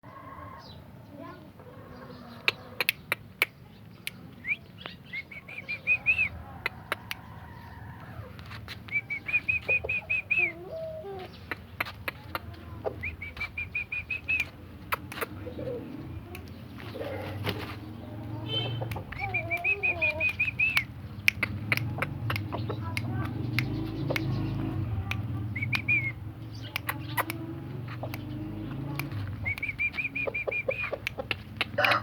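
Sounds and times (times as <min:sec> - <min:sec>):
bird chirps: 0:02.1 - 0:06.8, 0:08.8 - 0:17.2, 0:17.9 - 0:32.0
sharp clicks: 0:11.4 - 0:15.4, 0:16.3 - 0:32.0
lower gliding bird calls: 0:18.4 - 0:21.0.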